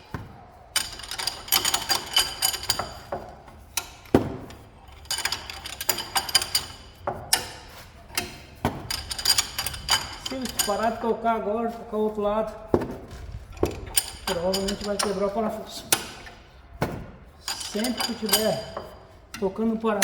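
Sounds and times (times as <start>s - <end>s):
metallic ringing: 13.1s - 16.6s.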